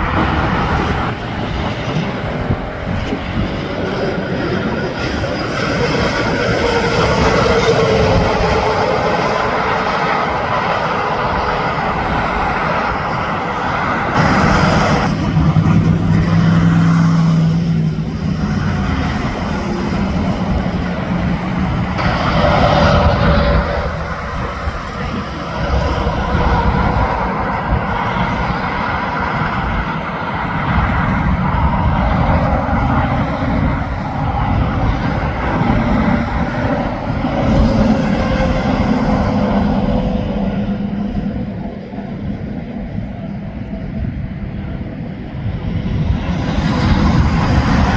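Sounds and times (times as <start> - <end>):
truck engine drone: 0.0 - 45.5
highway traffic roar: 0.0 - 47.9.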